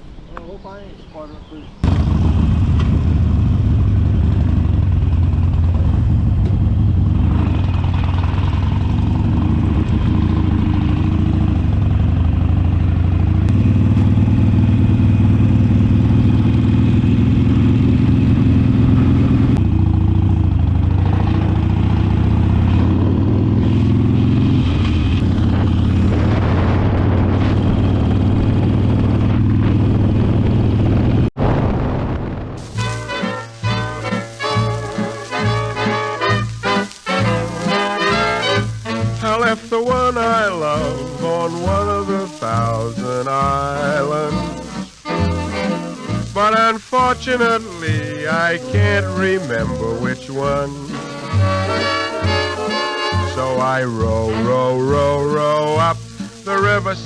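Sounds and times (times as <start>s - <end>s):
motorcycle engine running: 1.8s - 31.4s.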